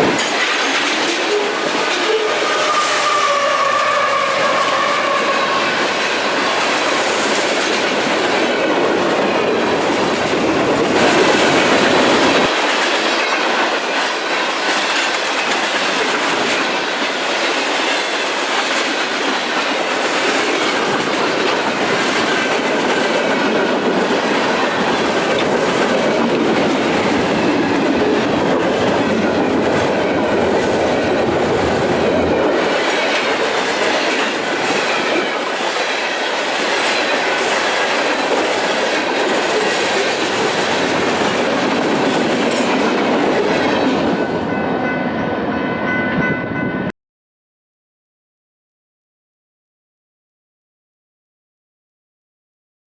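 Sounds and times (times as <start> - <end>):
freight train wheels clattering: 0.0 - 45.0
train wheels squealing: 0.7 - 5.7.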